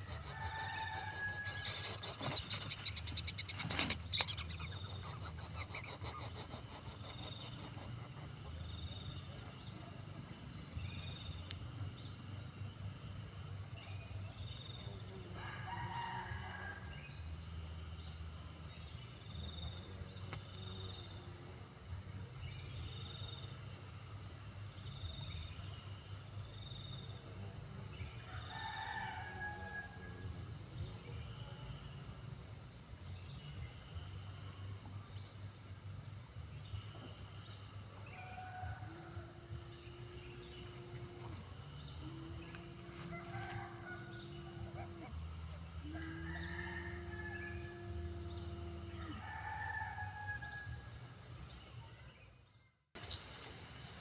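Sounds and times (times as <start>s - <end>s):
bird calls: 0.0s - 8.6s
insect chorus buzzing and chirping: 0.0s - 54.0s.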